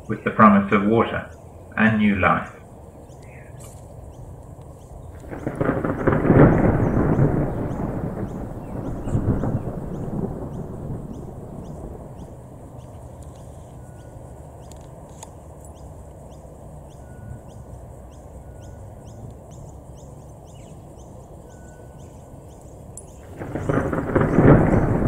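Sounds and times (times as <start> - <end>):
steady low rumble: 0.0 - 25.0
low whistles: 5.2 - 14.8, 16.9 - 19.8, 20.6 - 25.0.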